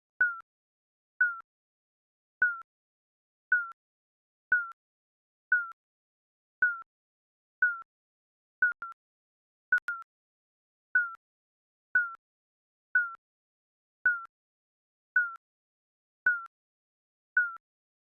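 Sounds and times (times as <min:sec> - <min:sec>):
electronic timer beeps: 0:00.2 - 0:00.4, 0:01.2 - 0:01.4, 0:02.4 - 0:02.7, 0:03.5 - 0:03.8, 0:04.5 - 0:04.8, 0:05.5 - 0:05.8, 0:06.6 - 0:06.8, 0:07.6 - 0:07.9, 0:08.6 - 0:09.0, 0:09.7 - 0:10.1, 0:11.0 - 0:11.2, 0:12.0 - 0:12.2, 0:13.0 - 0:13.2, 0:14.0 - 0:14.3, 0:15.2 - 0:15.4, 0:16.3 - 0:16.5, 0:17.4 - 0:17.6.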